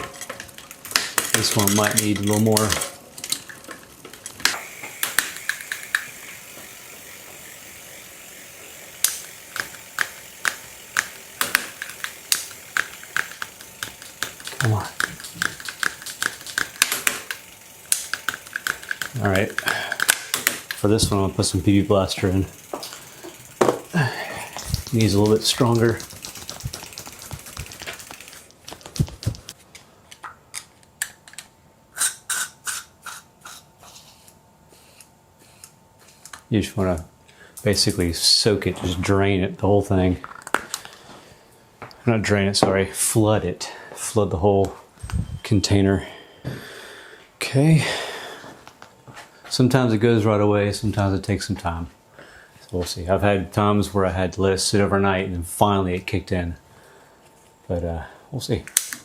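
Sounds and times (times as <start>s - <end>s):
bicycle gear shifter clicking: 4.4s - 29.5s
spray can hissing: 4.5s - 28.5s.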